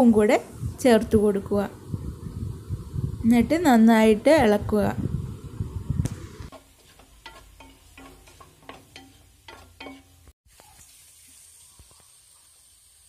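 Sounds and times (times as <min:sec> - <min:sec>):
onions sizzling in oil: 0:05.3 - 0:13.0
spatula scraping and knocking pan: 0:06.5 - 0:10.4.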